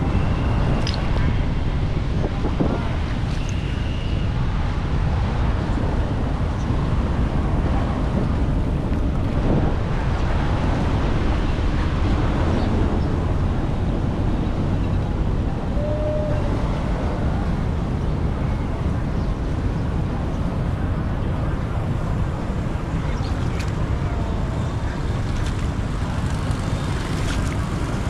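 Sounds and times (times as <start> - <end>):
wind noise on microphone: 0.0 - 28.0
floodwater rushing: 17.4 - 28.0.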